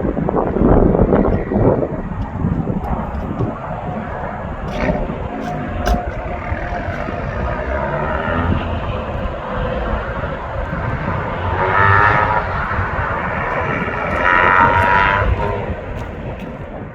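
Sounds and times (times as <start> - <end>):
car engine accelerating hard: 4.1 - 16.4.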